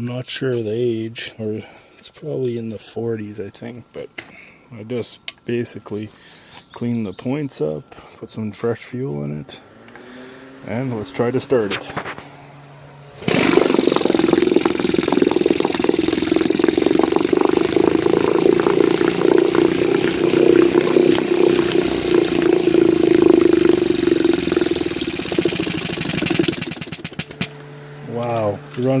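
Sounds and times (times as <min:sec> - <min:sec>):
outboard motor running: 0:12.9 - 0:29.0.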